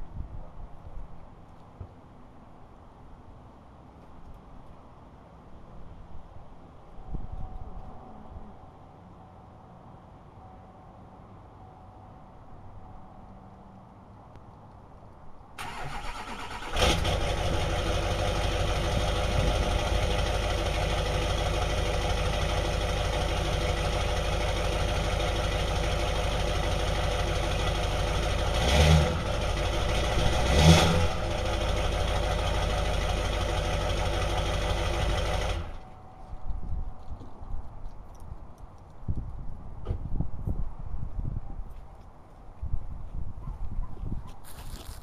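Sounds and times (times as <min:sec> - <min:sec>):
engine revving: 0:15.6 - 0:21.0, 0:27.8 - 0:35.8
diesel engine cranking: 0:15.6 - 0:35.9
diesel engine idling: 0:15.6 - 0:36.0.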